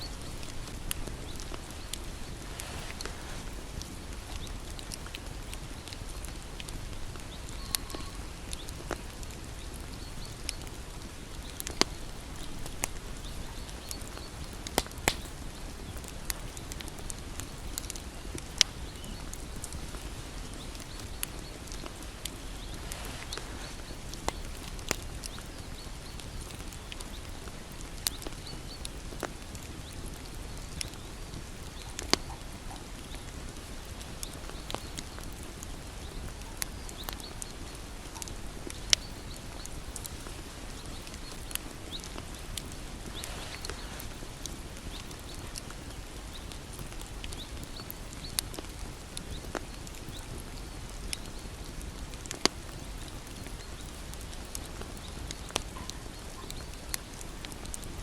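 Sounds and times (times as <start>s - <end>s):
bonfire crackling: 0.0s - 58.0s.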